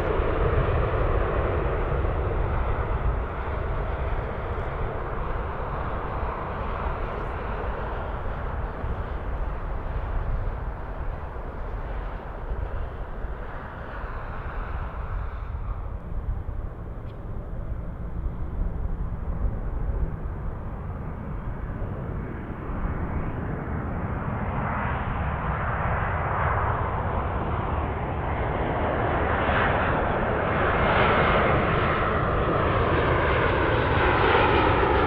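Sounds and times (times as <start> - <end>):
jet airliner engine rumble: 0.0 - 35.0.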